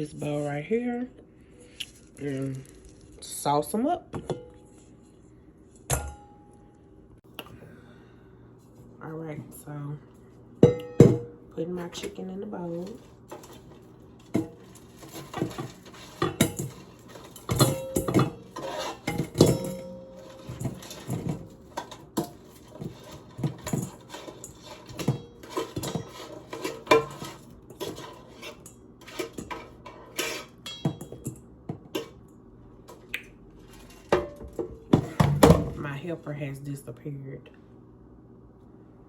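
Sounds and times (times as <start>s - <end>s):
utensil clinking against pan and bowl: 10.6s - 32.2s.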